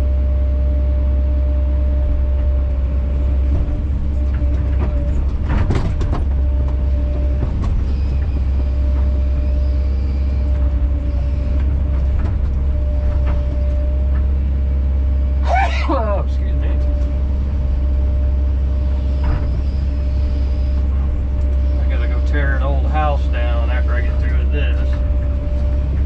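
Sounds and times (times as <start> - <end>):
excavator engine drone: 0.0 - 26.0
thin steady whine: 15.4 - 26.0.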